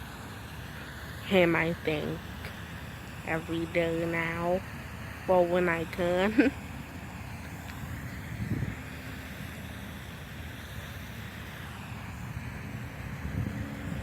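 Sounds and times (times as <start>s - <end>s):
wind on microphone: 7.8s - 9.0s, 12.7s - 14.0s.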